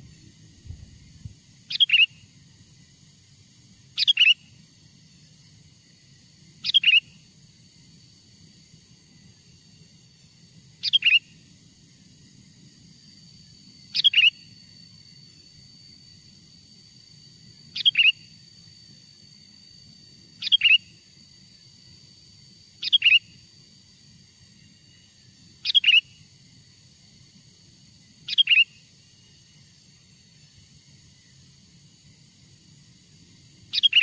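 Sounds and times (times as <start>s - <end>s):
bulbul calling: 1.7s - 2.2s, 4.0s - 4.4s, 6.6s - 7.1s, 10.8s - 11.3s, 17.8s - 18.2s, 20.4s - 20.9s, 22.8s - 23.3s, 25.6s - 26.1s, 28.3s - 28.8s, 33.7s - 34.0s.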